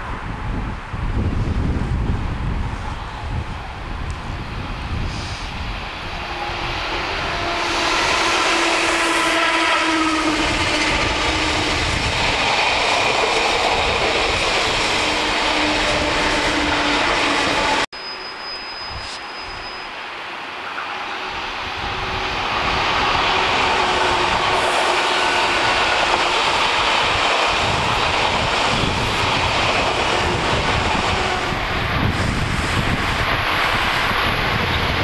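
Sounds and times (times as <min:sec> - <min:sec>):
electric train rushing past: 0:00.0 - 0:35.0
train whining tones: 0:05.0 - 0:35.0
faint high steady whistle: 0:18.0 - 0:20.0.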